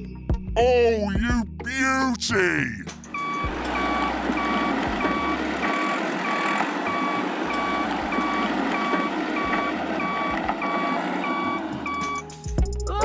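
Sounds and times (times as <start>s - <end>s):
reversing beeper short beeps: 3.1s - 12.3s.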